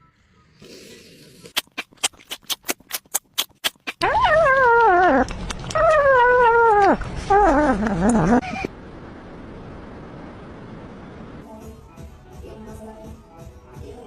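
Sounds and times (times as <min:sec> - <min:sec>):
pet crying: 0:04.0 - 0:08.7.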